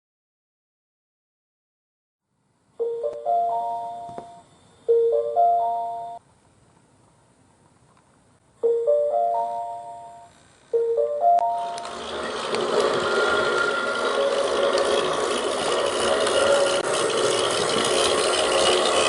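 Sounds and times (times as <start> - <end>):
electronic chime rising notes: 2.8 - 6.2, 8.6 - 12.4.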